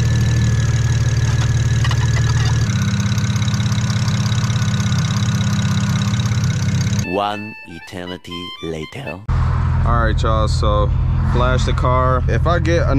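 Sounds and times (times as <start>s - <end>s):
car engine idling: 0.0s - 7.1s
thin engine whine: 0.0s - 7.4s.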